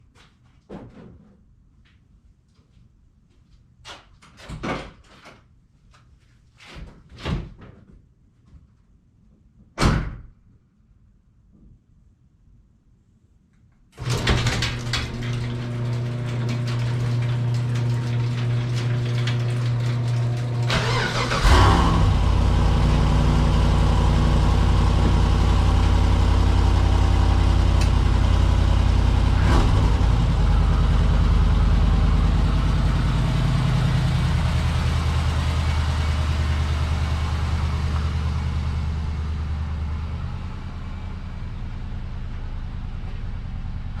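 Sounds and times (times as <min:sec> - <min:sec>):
car engine starting and idling: 0:14.0 - 0:44.0.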